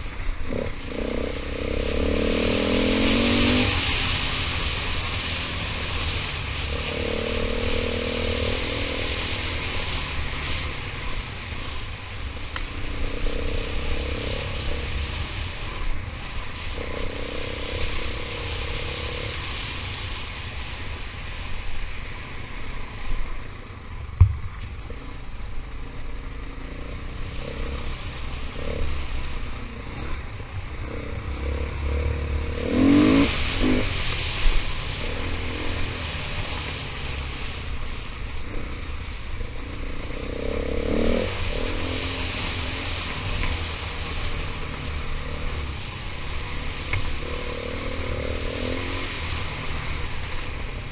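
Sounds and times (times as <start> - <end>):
dirt bike engine revving: 0.0 - 11.7, 12.8 - 19.6, 25.8 - 37.6, 38.2 - 50.9
sharp thump: 24.2 - 24.6.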